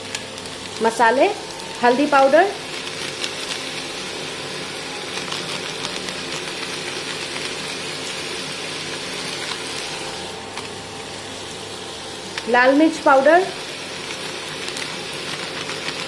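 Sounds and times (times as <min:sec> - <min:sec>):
chicken sizzling in wok: 0:00.0 - 0:16.0.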